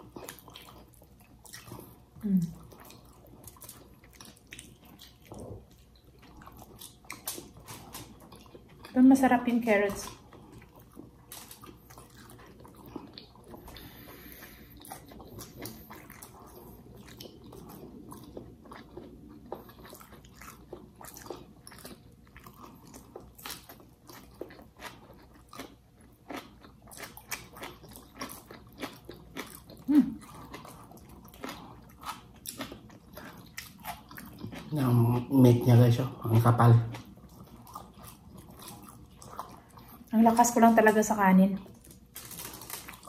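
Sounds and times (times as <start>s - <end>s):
wet chewing: 0.0s - 43.0s
crunch of leaves being chewed: 41.8s - 43.0s.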